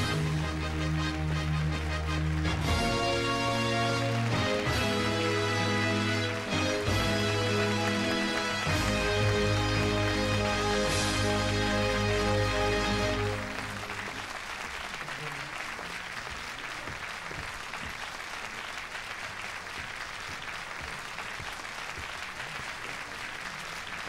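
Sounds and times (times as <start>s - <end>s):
music: 0.0s - 14.5s
large crowd applauding: 0.0s - 24.0s.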